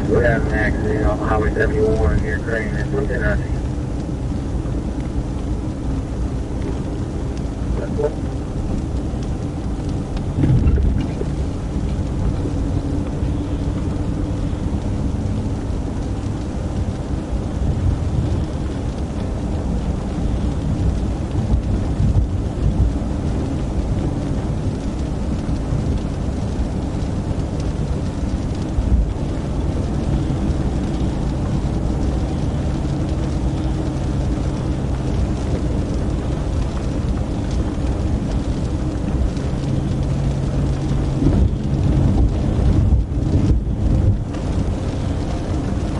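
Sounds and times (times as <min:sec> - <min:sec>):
car engine rumble: 0:00.0 - 0:45.9
road noise: 0:00.0 - 0:45.9.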